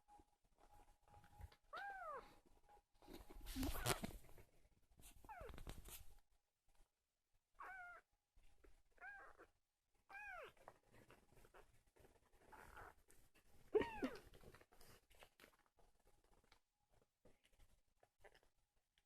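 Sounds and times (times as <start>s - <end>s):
kitten mewing: 7.6s - 8.0s.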